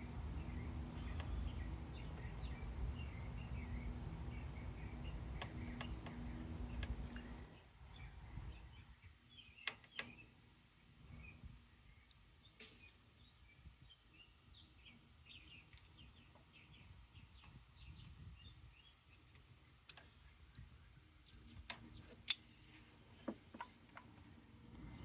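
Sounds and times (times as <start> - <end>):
faint small birds chirping: 0.0 - 25.0.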